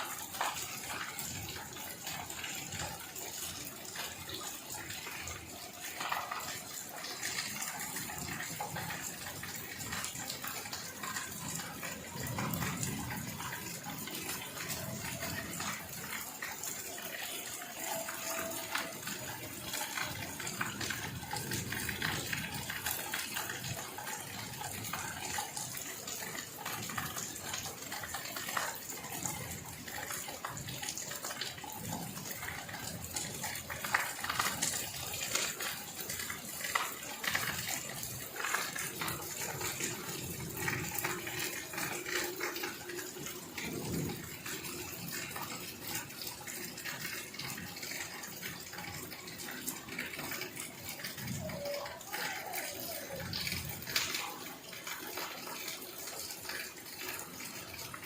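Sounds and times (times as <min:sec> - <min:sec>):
heavy rain pouring: 0:00.0 - 0:58.0
water splashing and running: 0:00.0 - 0:58.0.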